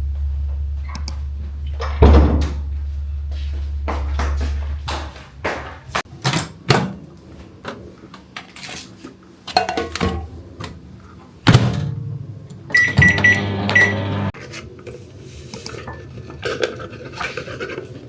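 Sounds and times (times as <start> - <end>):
electric appliance hum: 12.1 - 14.4
short electronic beeps: 12.7 - 14.3.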